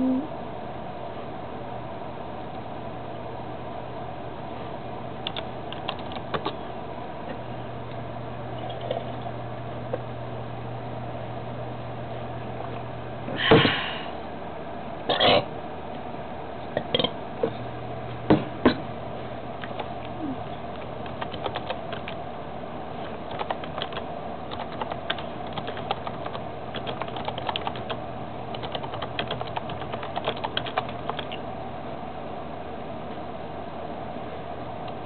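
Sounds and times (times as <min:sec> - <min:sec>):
faint low hum: 0:00.0 - 0:35.0
small irregular eating clicks: 0:05.2 - 0:06.6, 0:19.6 - 0:22.2, 0:23.0 - 0:31.4.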